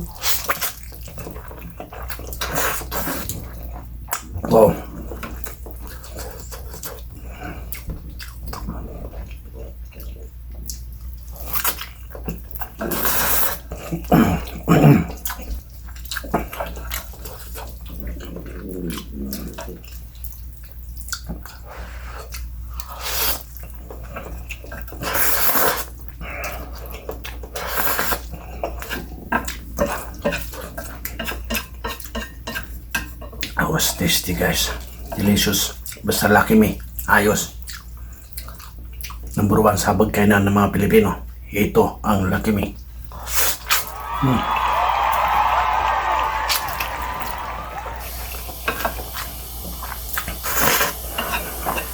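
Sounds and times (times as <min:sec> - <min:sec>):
slurping noodles: 0:00.0 - 0:07.9, 0:11.4 - 0:20.0, 0:21.5 - 0:31.4, 0:43.1 - 0:44.4, 0:46.6 - 0:51.9
wet chewing and lip-smacking: 0:00.0 - 0:39.6, 0:42.8 - 0:44.3, 0:46.7 - 0:51.9.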